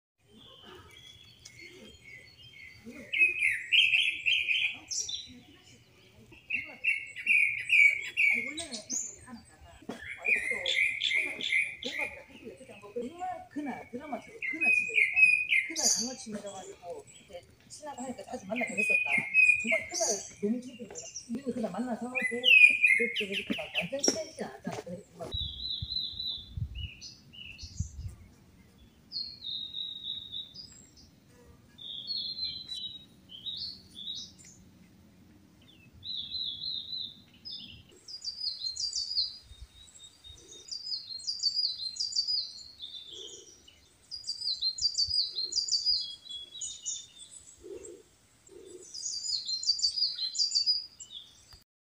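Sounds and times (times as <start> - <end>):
birds singing high whistles: 0.3 - 5.3, 6.4 - 9.2, 14.3 - 16.3, 18.4 - 21.4, 22.1 - 24.2, 25.3 - 31.2, 35.6 - 51.6
low bird calls: 25.2 - 51.6.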